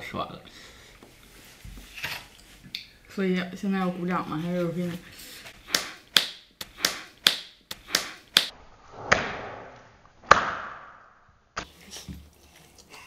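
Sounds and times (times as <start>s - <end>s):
hand clapping: 5.7s - 8.5s.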